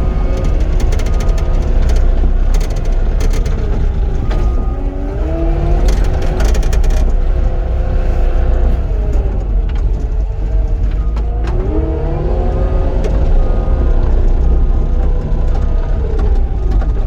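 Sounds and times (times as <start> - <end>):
machine clanks and rattles: 0.0 - 12.0
diesel engine running under load: 0.0 - 17.0.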